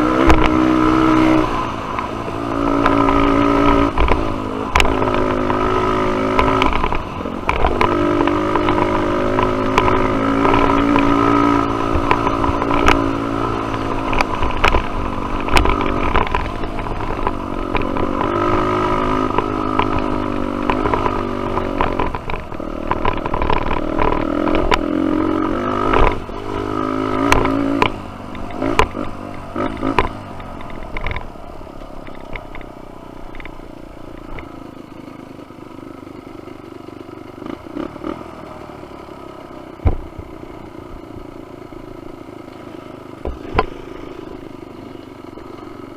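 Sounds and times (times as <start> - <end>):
bike knocks and rattles: 0.0 - 1.5, 2.1 - 34.6, 39.8 - 40.3, 43.1 - 44.0
dirt bike engine revving: 0.0 - 31.3, 37.4 - 40.3, 41.5 - 45.9.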